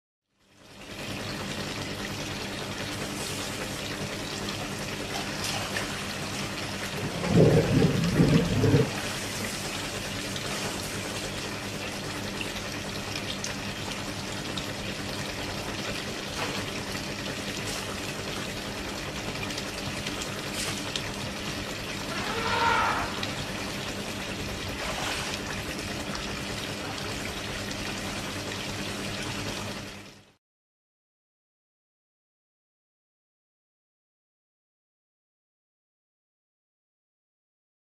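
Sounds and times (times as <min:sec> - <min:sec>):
water splashing and pouring: 0:01.5 - 0:30.2
elephant low rumbling: 0:06.9 - 0:09.0, 0:22.0 - 0:23.8
elephant wavering call: 0:22.0 - 0:23.8.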